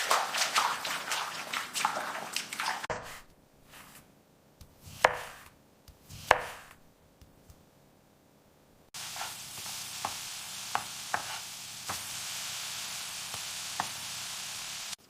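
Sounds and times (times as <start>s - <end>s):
chopping strokes: 4.8s - 6.8s, 9.0s - 12.1s.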